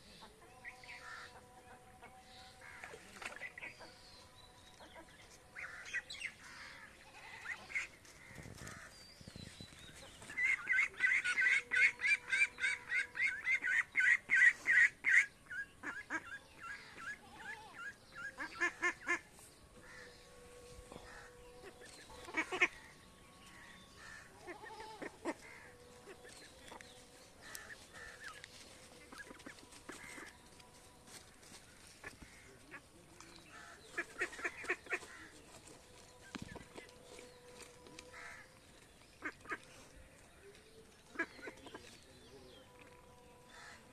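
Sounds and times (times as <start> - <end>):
ducks quacking: 10.2 - 20.1, 21.0 - 22.9, 23.5 - 26.3, 27.4 - 30.4, 32.0 - 35.4, 39.2 - 39.9, 41.1 - 42.0.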